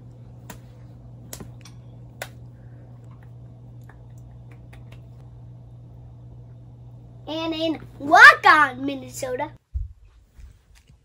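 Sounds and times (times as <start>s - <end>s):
steady low hum: 0.0s - 11.0s
child clapping hands: 3.9s - 5.1s.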